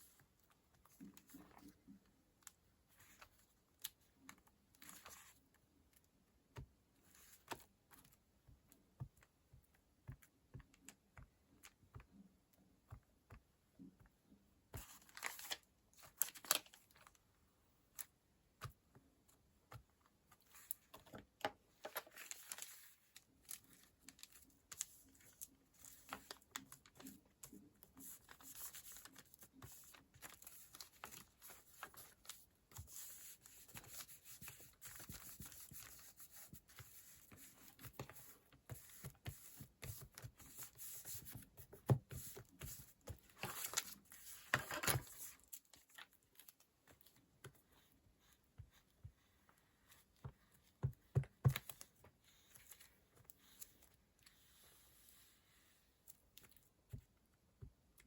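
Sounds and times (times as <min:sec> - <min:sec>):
paper rustling: 0:14.8 - 0:17.2, 0:21.8 - 0:47.2.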